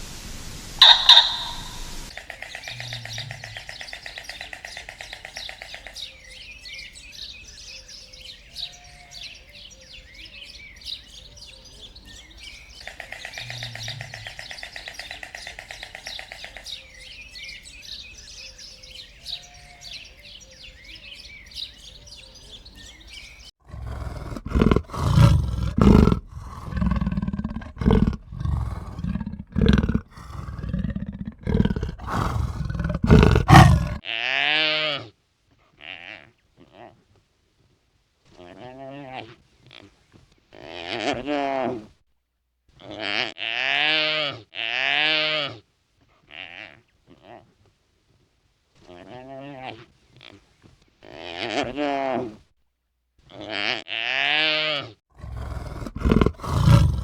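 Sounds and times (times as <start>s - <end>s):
large animal deep calls: 0.8s - 6.0s, 12.8s - 16.8s, 23.6s - 34.0s, 55.1s - 57.0s
bird chirping: 0.8s - 23.5s, 33.1s - 34.0s.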